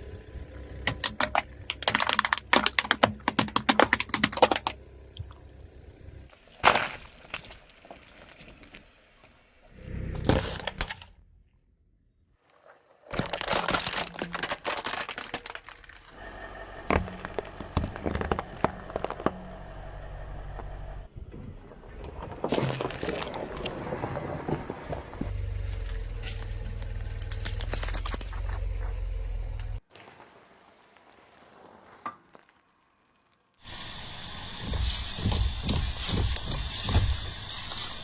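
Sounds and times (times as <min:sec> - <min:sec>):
tyre crushing brittle objects: 0:00.9 - 0:04.8, 0:06.4 - 0:08.7, 0:13.0 - 0:16.2, 0:16.9 - 0:19.6, 0:22.2 - 0:24.6, 0:25.2 - 0:29.0.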